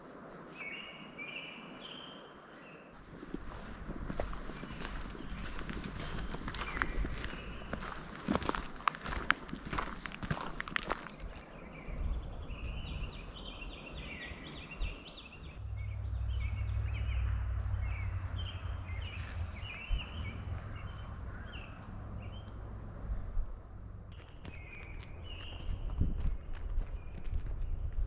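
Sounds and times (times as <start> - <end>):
birds chirping: 0.0 - 22.9
low steady rumble: 11.2 - 24.2.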